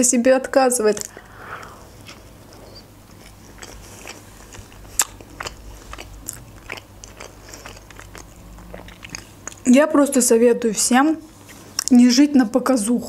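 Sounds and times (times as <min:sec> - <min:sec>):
person chewing food: 0:01.0 - 0:09.7.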